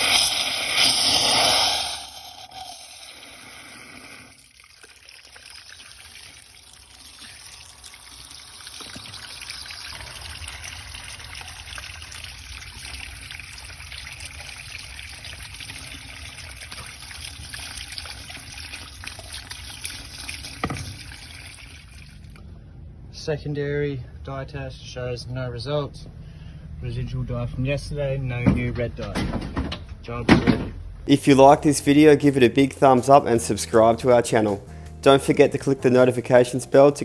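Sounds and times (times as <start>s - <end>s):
water trickling and running: 2.3s - 22.4s.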